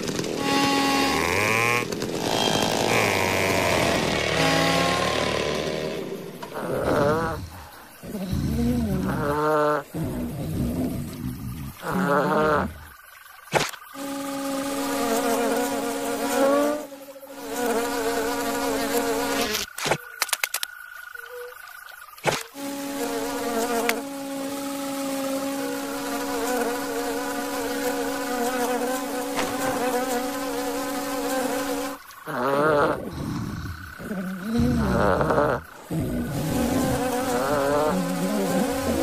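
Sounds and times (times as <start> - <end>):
cartoon insect wing buzz: 0.0 - 12.9, 13.5 - 20.0, 22.2 - 39.0
sharp clicks: 19.6 - 20.8.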